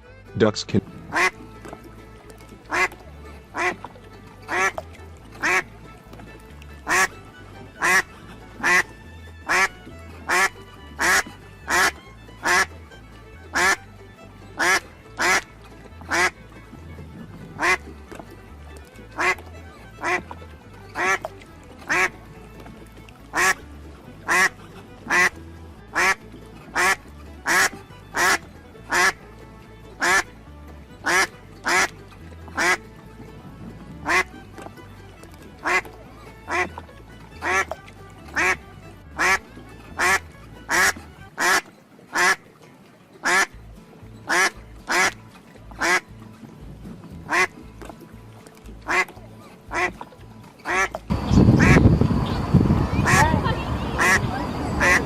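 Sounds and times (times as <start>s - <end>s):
quiet background music: 0.0s - 55.0s
duck quacking: 0.3s - 1.4s, 2.6s - 3.9s, 4.5s - 4.8s, 5.4s - 5.7s, 6.8s - 12.7s, 13.5s - 13.8s, 14.6s - 15.5s, 16.1s - 16.4s, 17.5s - 17.9s, 19.1s - 20.3s, 20.9s - 22.2s, 23.3s - 23.6s, 24.2s - 29.2s, 30.0s - 30.3s, 31.0s - 31.9s, 32.6s - 32.8s, 34.0s - 34.5s, 35.6s - 42.4s, 43.2s - 43.5s, 44.3s - 45.2s, 45.8s - 46.0s, 47.3s - 47.5s, 48.9s - 49.1s, 49.7s - 50.0s, 50.6s - 55.0s.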